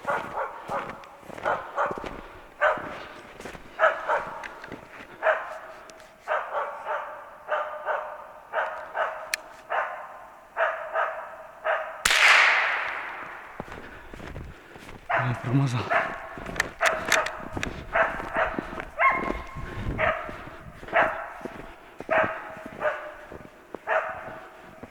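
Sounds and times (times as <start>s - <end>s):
dog barking: 0.0s - 12.0s, 12.8s - 24.9s
gunshot with echo: 12.1s - 14.3s.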